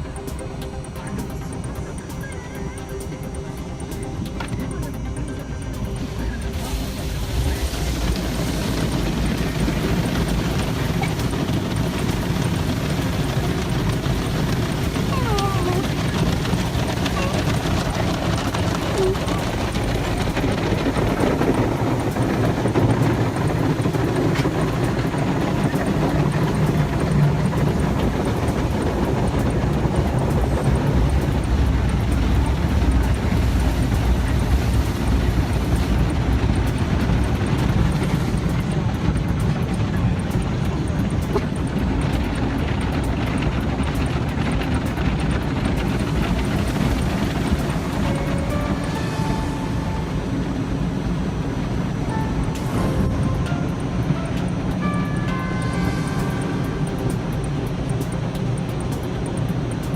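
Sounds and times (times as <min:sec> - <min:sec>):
car wash machinery rumbling: 0:00.0 - 0:59.9.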